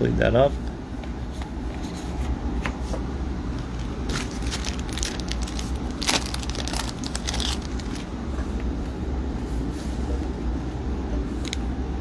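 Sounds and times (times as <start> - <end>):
steady low hum: 0.0 - 12.0
plastic sleeves crinkling: 3.5 - 8.2, 11.4 - 11.7.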